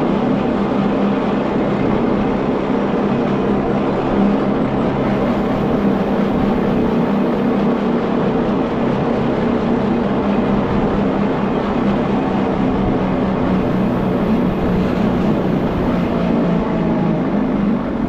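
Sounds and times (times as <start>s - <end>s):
mechanical hum: 0.0s - 18.0s
train wheels rumbling on track: 0.0s - 18.0s.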